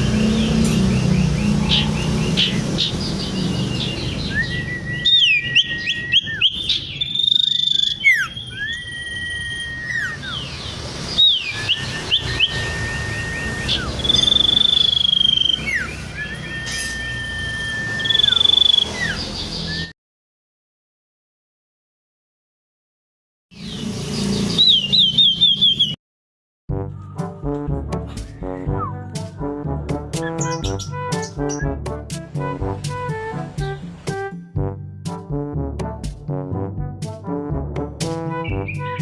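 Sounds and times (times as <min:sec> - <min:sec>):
bird chirps and whistles: 0:03.6 - 0:19.9, 0:23.6 - 0:26.0, 0:30.2 - 0:31.8.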